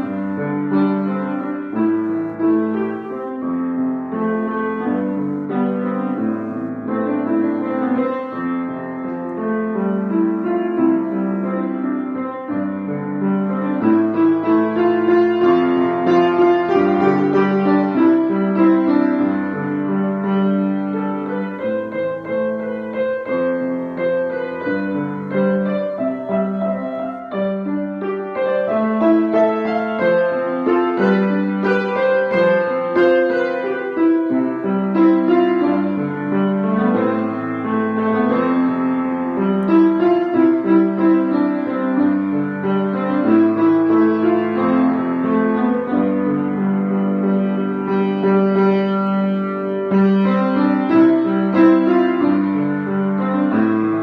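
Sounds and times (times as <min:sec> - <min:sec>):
piano piece: 0:00.0 - 0:54.0.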